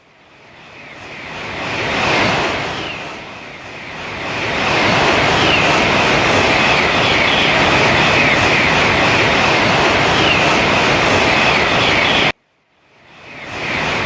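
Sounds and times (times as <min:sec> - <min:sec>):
high-speed train rushing past: 0:00.5 - 0:12.4, 0:13.2 - 0:14.0.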